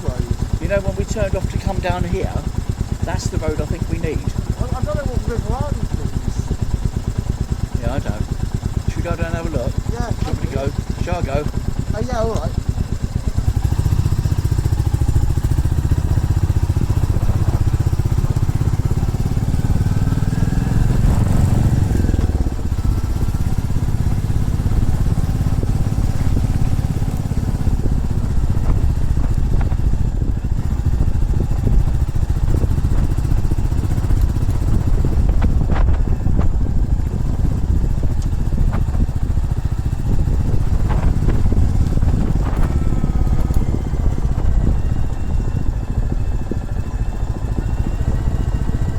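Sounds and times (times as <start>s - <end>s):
motorcycle engine rumbling: 0.0s - 48.9s.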